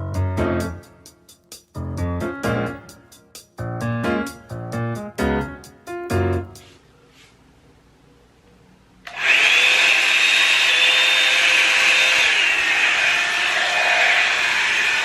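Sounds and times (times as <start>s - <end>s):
hair dryer switch: 9.1s - 12.8s
hair dryer blowing and whining: 9.1s - 15.0s.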